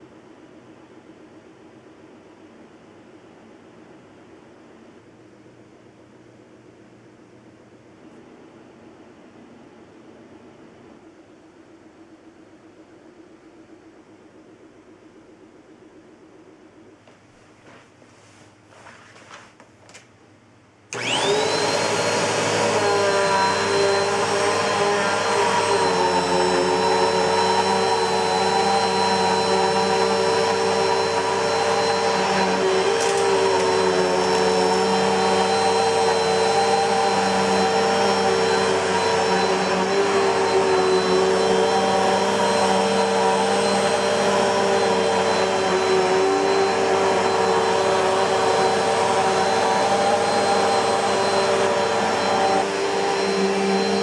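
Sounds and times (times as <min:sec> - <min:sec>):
vacuum cleaner motor whine: 0:20.9 - 0:54.0.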